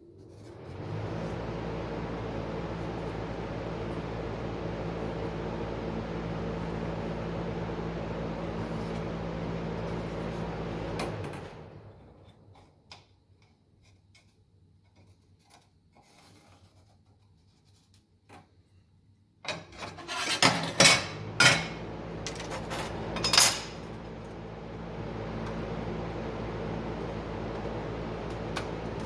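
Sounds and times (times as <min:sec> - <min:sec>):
machine hum: 0:00.1 - 0:12.2, 0:21.1 - 0:29.0.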